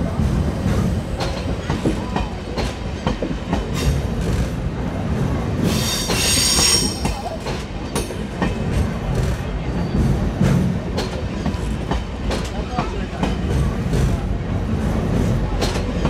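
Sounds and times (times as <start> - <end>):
train rolling over steel bridge: 0.0 - 16.0
high wheel squeal: 5.8 - 7.3
wheels clicking over rail joints: 15.1 - 16.0.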